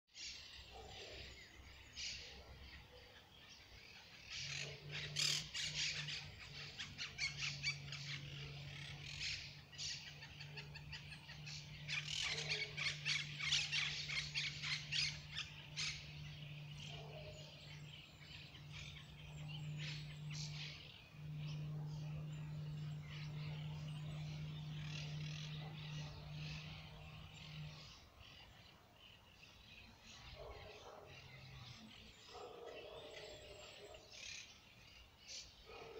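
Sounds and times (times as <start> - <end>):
birds chirping: 0.1 - 35.9
steady low hum: 3.6 - 32.3.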